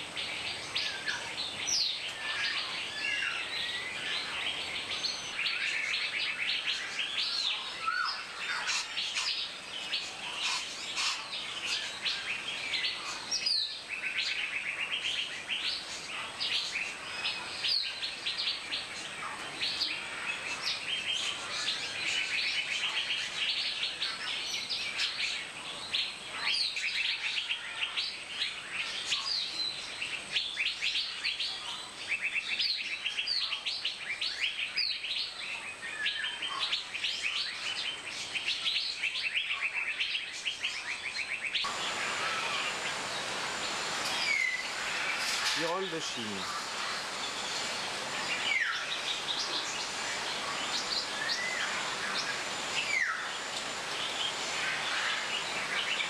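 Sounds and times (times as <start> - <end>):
birds chirping and calling: 0.0 - 56.0.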